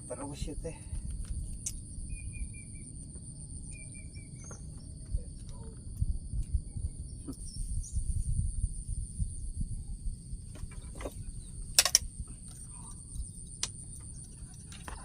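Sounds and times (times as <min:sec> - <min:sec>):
insects trilling: 0:00.0 - 0:15.0
low rumble: 0:00.0 - 0:15.0
bird chirping call: 0:02.1 - 0:02.9, 0:03.7 - 0:04.9.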